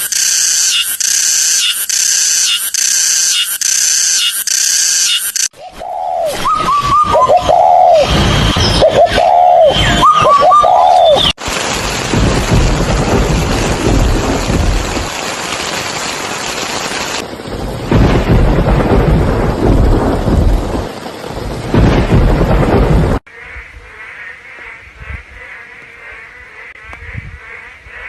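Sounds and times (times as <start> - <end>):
rolling thunder: 6.3 - 10.6, 11.2 - 23.2
steady rain: 10.3 - 23.3.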